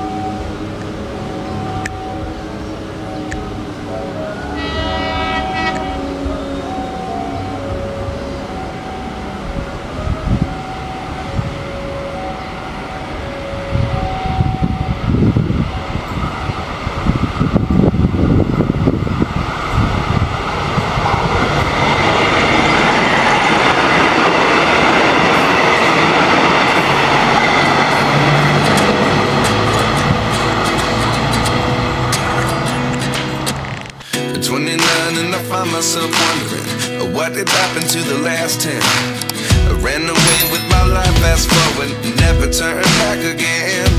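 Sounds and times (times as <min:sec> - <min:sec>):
two-note alarm: 0:00.0 - 0:17.0
passenger train passing: 0:00.0 - 0:43.9.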